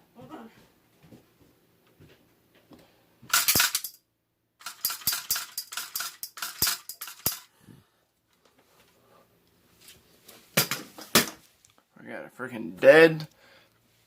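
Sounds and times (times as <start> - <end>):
hand tool clicking and rattling: 3.3 - 4.0, 4.6 - 7.5.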